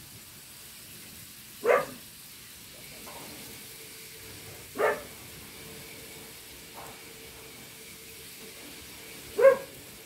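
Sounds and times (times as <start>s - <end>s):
vegetables sauteing in a wok: 0.0s - 10.0s
dog barking: 1.6s - 2.0s, 4.7s - 5.2s, 9.4s - 9.8s.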